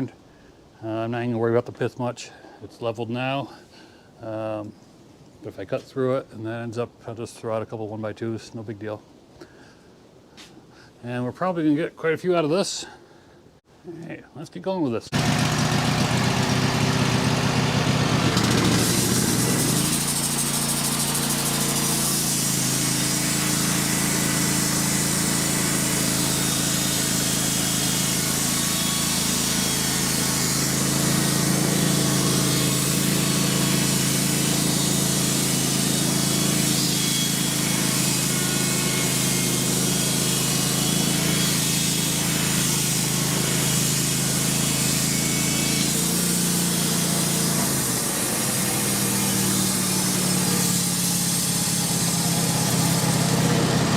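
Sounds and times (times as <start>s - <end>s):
band blade cutting log: 15.1s - 53.9s
sawmill engine under load: 15.1s - 53.9s.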